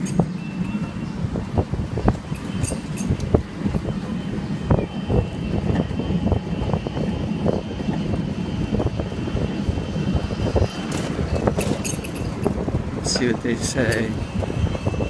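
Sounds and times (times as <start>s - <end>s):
road noise: 0.0s - 15.0s
rattles and knocks: 11.0s - 12.6s.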